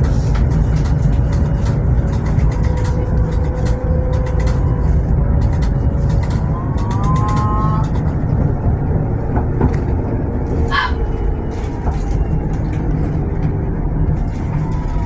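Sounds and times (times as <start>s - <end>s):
tram rumbling on rails: 0.0s - 15.0s.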